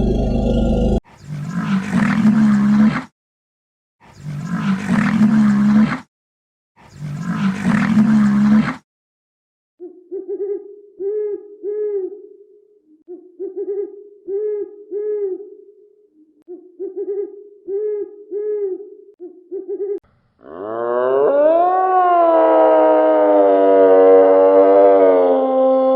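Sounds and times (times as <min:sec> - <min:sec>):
loud rising wail: 0:00.0 - 0:01.0.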